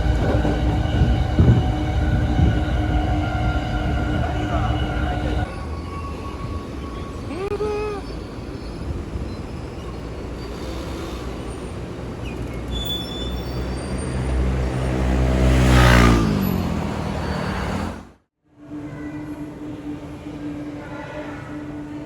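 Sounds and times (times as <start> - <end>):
train motor whine: 0.0 - 7.4
electric train rumbling: 0.0 - 22.0.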